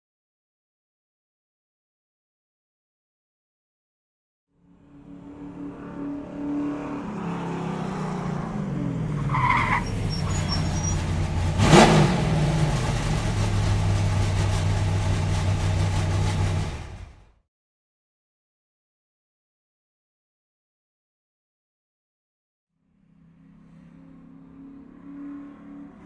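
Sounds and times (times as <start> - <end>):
car engine running: 7.0 - 17.3
short squeal: 8.9 - 11.3.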